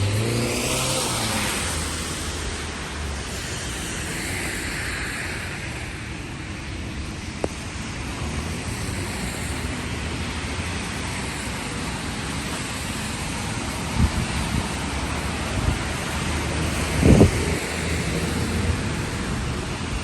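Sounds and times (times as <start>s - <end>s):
car tyres swishing on wet road: 0.0s - 20.0s
heavy rain hissing: 0.0s - 20.0s.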